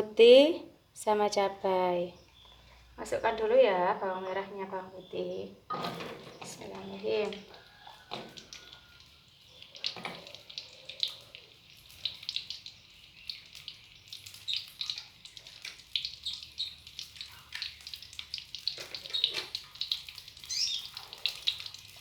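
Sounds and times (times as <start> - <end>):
shallots sizzling in hot oil: 6.5 - 22.0.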